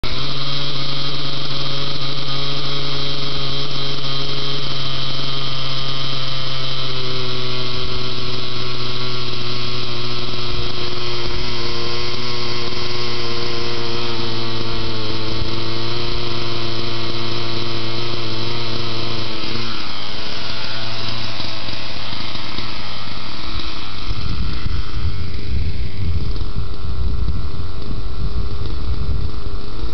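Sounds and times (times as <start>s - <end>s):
model helicopter engine running: 0.0s - 29.9s
low rumble: 21.4s - 29.6s.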